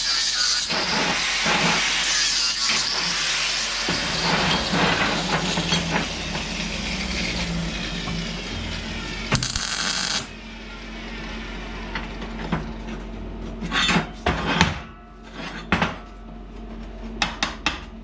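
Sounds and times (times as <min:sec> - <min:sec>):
angle grinder grinding steel: 0:00.0 - 0:10.4.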